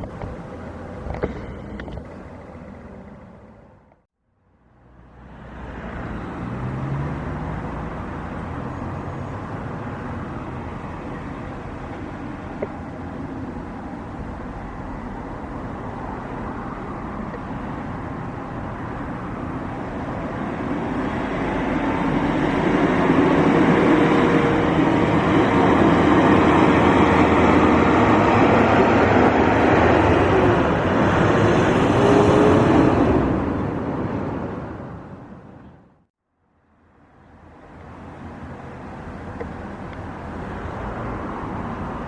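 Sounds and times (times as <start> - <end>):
jet engines passing: 9.3 - 36.0.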